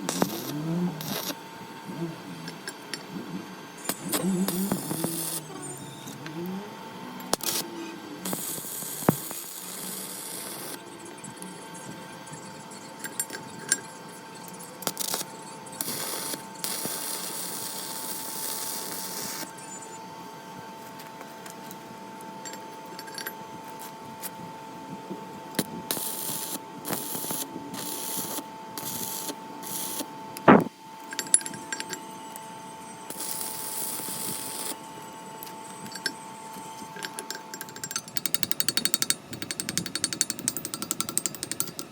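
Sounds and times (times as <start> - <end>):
steady hum: 0.0 - 41.9
metal tools clinking and knocking: 31.1 - 32.0, 36.9 - 41.9.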